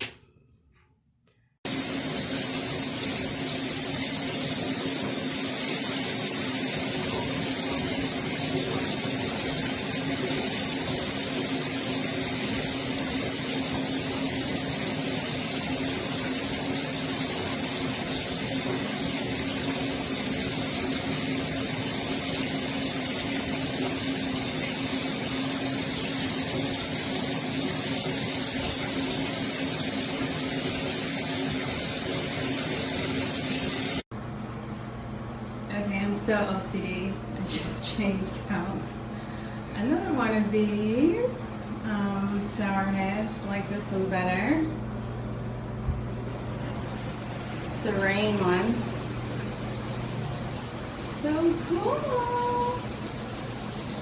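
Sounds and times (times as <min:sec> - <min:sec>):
shower water spraying: 0:01.6 - 0:34.1, 0:46.1 - 0:54.0.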